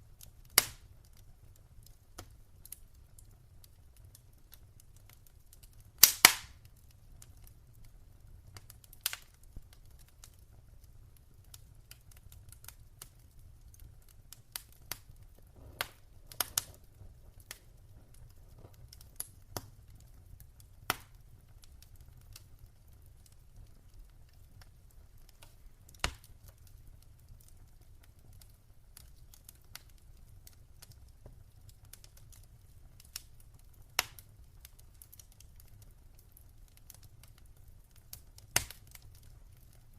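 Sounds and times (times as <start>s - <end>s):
wood fire crackling: 0.0s - 39.9s
faint low rumble: 12.9s - 27.3s.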